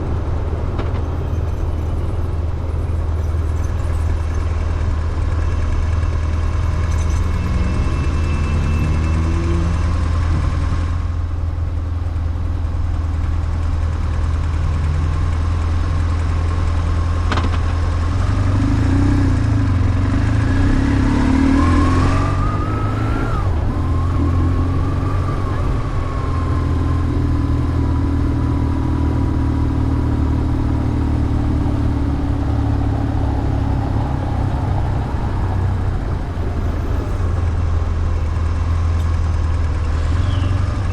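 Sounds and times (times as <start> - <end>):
motorcycle engine revving: 17.3 - 36.4.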